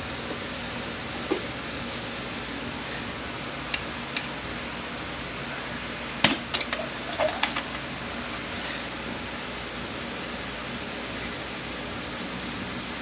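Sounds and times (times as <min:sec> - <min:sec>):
steady shop hiss: 0:00.0 - 0:13.0.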